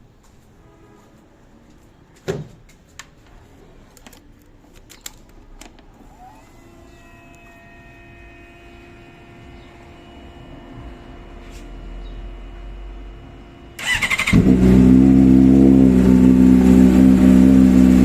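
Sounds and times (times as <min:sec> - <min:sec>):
steady electric whine: 0:05.9 - 0:14.5.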